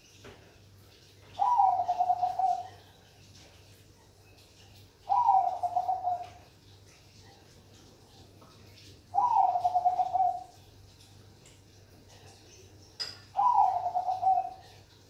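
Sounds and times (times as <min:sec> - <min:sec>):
dove cooing: 0:01.3 - 0:03.0, 0:05.0 - 0:06.5, 0:09.1 - 0:10.7, 0:13.3 - 0:15.0.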